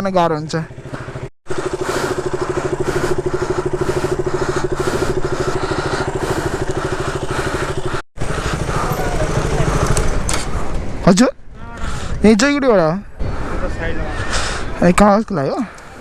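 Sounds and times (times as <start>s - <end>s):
motorcycle engine idling: 0.1s - 11.1s.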